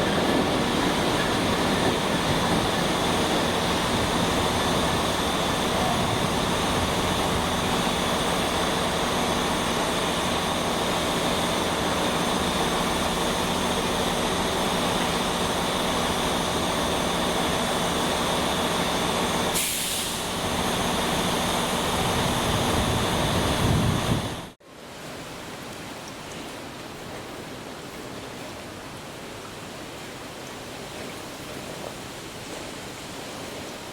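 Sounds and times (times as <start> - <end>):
locomotive drone: 0.0 - 24.6
air hiss: 19.5 - 20.4.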